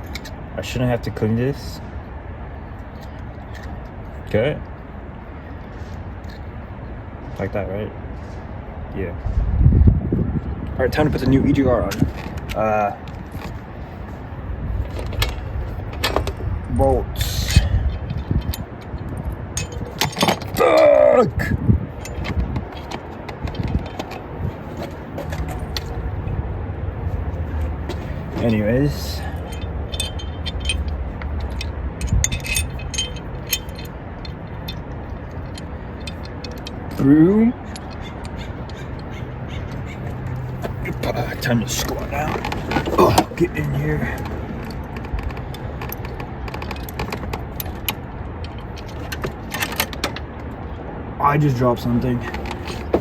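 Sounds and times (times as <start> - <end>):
low steady rumble: 8.1 - 53.0
metal tool clicks and clatter: 17.4 - 20.8, 22.0 - 26.0, 27.9 - 37.0, 37.6 - 40.8
metallic clinks of hand tools: 28.3 - 33.9.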